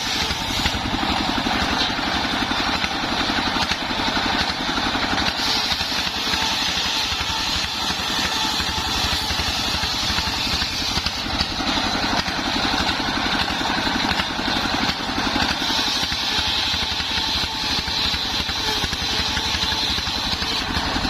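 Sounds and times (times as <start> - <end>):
engine running steadily: 0.0 - 21.0
saw blade whine: 0.0 - 21.0.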